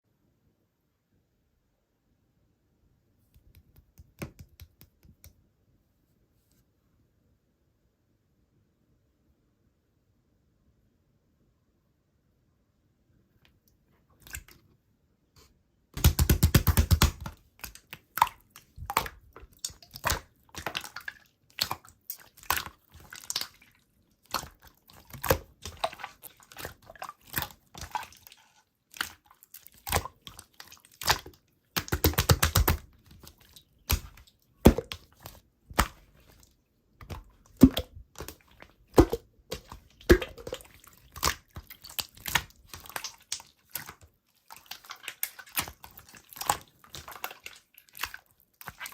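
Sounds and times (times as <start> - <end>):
slime crackling: 16.0 - 48.9
slime squishing: 16.0 - 48.9
air pops in slime: 37.5 - 38.0.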